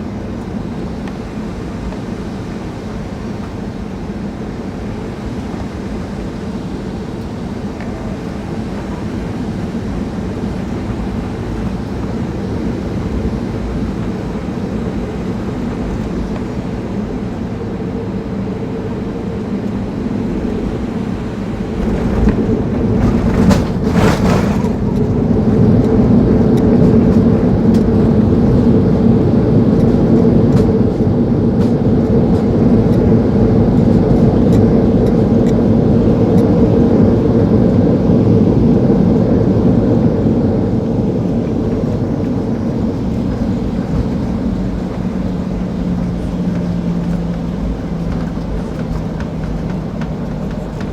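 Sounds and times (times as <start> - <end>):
jet engine and airflow rumble: 0.0 - 50.9
landing gear jolt and rattle: 21.8 - 25.1.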